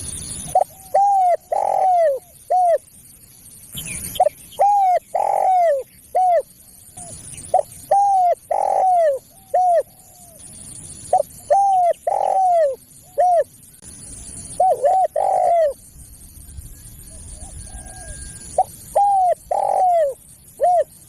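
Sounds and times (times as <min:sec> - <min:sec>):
dove cooing: 0:00.5 - 0:02.8, 0:04.1 - 0:10.4, 0:11.1 - 0:13.5, 0:14.5 - 0:15.8, 0:17.0 - 0:21.0.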